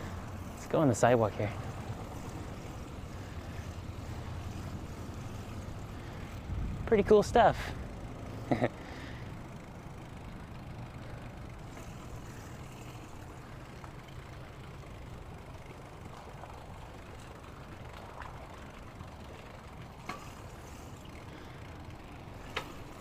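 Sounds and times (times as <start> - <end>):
bicycle rolling on pavement: 0.0 - 23.0
wind noise on microphone: 6.4 - 6.9.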